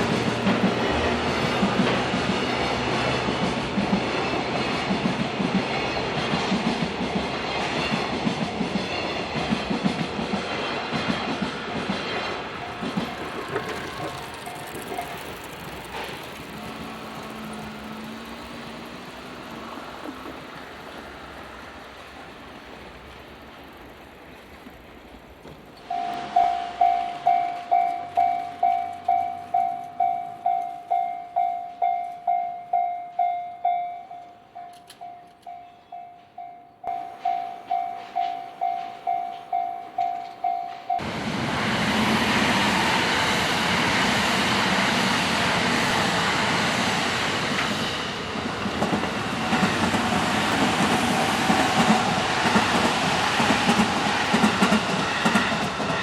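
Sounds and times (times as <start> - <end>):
crossing warning bell clanging: 0.0 - 19.8, 25.8 - 41.3
train wheels clattering: 0.0 - 56.0.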